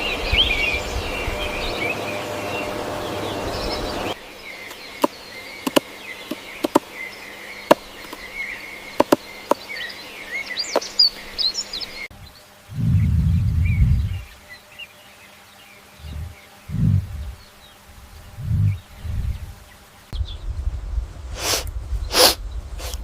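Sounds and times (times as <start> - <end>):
small birds chirping: 0.0 - 20.6
insects chirring: 0.0 - 23.0
sharp clicks: 6.6 - 6.8.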